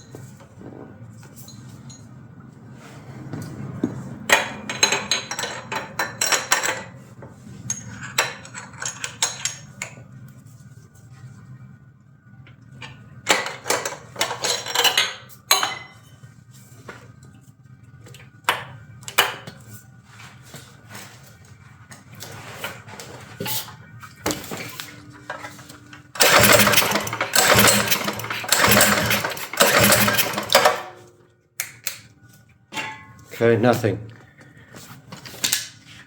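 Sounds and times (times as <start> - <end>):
small engine pull-start cranking: 26.2 - 30.9.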